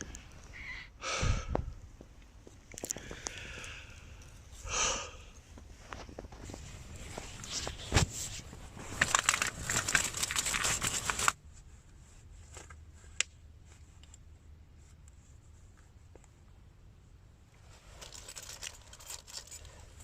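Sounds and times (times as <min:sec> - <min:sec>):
rustling handling noise: 0:05.4 - 0:16.4, 0:17.6 - 0:20.0.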